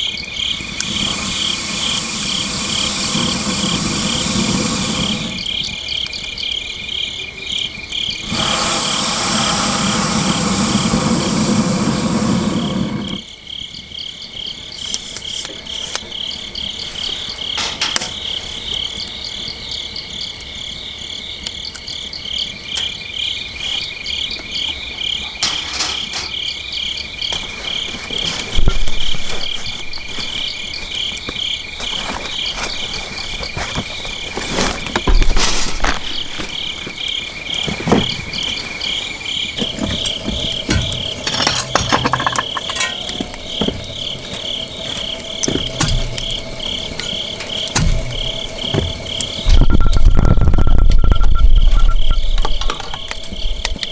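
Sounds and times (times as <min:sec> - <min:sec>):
crickets chirping: 0:00.0 - 0:53.9
sharp knocks: 0:47.6 - 0:49.8.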